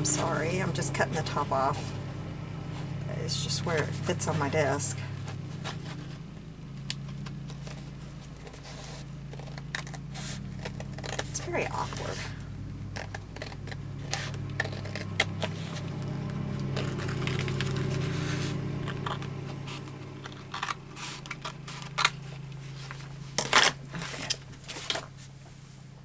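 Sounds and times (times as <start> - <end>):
low hum: 0.0 - 26.0
paper rustling: 5.0 - 25.6
scissors snipping paper: 7.5 - 25.1.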